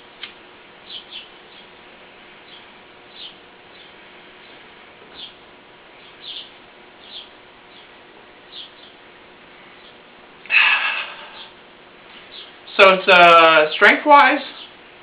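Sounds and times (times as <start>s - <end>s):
steady low hiss: 0.0s - 15.0s
small birds chirping: 0.7s - 15.0s
breathy rush of air: 10.5s - 11.6s.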